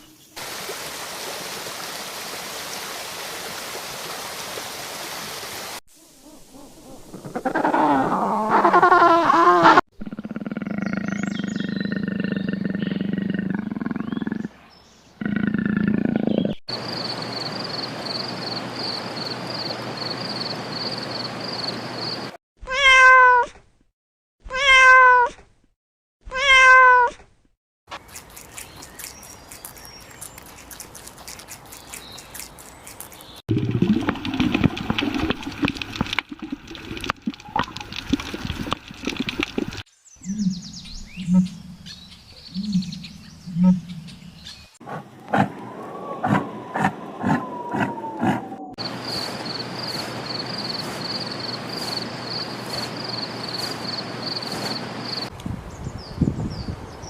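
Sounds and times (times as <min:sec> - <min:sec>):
animal calls: 0:06.0 - 0:14.6, 0:40.3 - 0:44.2, 0:44.9 - 0:55.3
cat meowing: 0:22.7 - 0:23.5, 0:24.5 - 0:25.4, 0:26.3 - 0:27.2.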